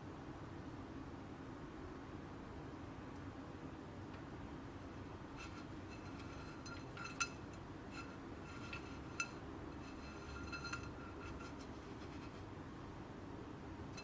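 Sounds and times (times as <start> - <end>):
kitchenware clinking: 5.4 - 11.7.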